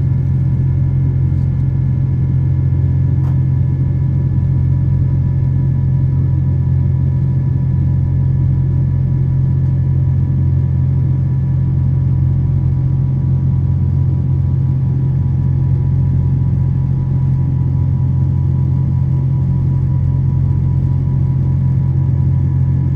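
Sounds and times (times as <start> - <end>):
airplane cabin drone: 0.0 - 22.9.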